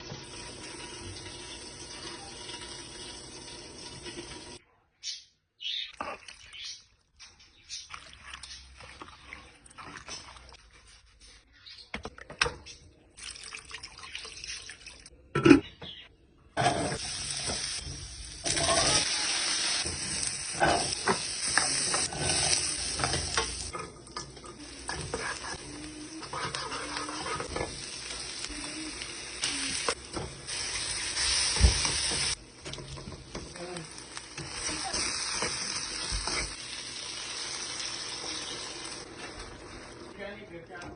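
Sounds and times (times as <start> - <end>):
steady cooking hiss: 0.0 - 4.6, 16.6 - 40.5.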